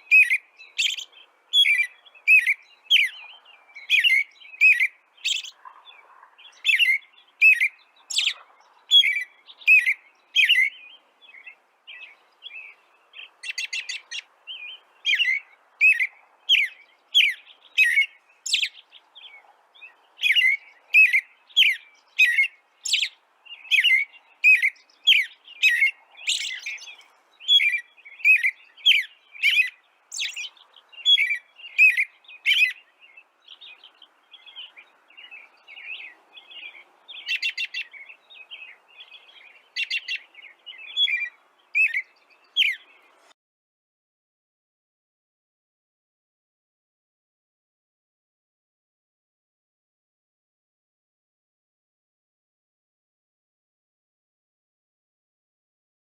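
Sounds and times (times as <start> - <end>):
bird chirping: 0.0 - 43.4.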